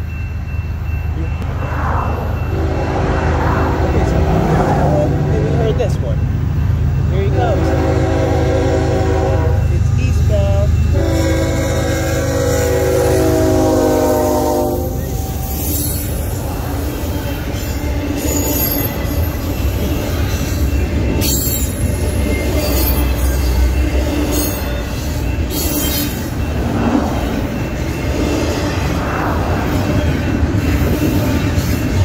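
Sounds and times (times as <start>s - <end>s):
train rumbling past: 0.0s - 32.0s
locomotive air horn: 7.6s - 9.7s, 10.9s - 15.3s
high wheel squeals: 14.2s - 32.0s.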